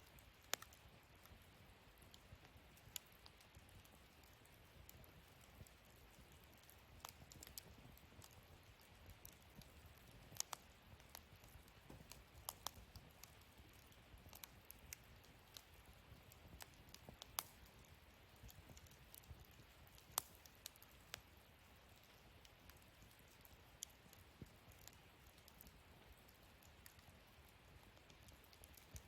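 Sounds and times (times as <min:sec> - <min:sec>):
wood fire crackling and popping: 0:00.0 - 0:29.0.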